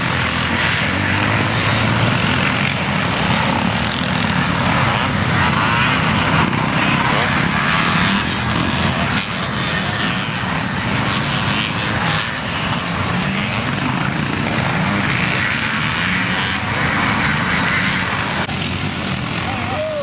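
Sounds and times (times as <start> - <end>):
motocross bike engines: 0.0 - 20.0.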